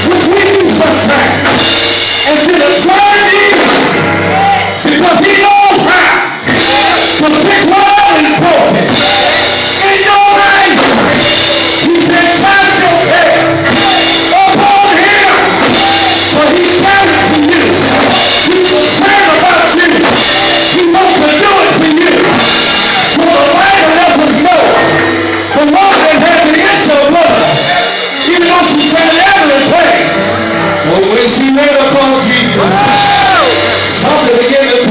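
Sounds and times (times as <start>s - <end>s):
live gospel band: 0.0s - 34.9s
low bass notes: 0.0s - 34.9s
person singing gospel: 0.0s - 34.9s.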